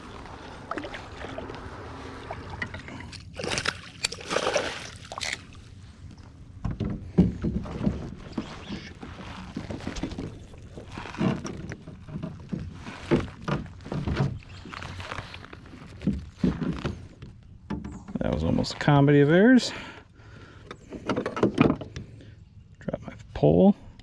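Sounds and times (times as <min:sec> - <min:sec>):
water splashing against kayak: 0:00.0 - 0:05.8.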